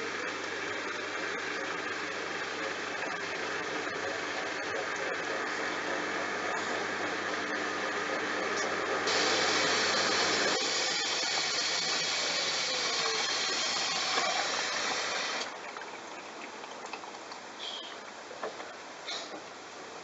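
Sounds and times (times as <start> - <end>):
washing machine running: 0.0 - 16.4
hissing rush: 9.1 - 15.5.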